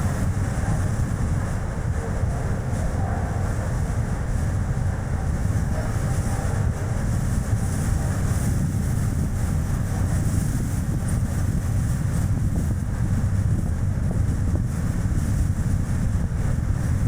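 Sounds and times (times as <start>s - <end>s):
gusty wind on microphone: 0.0s - 17.0s.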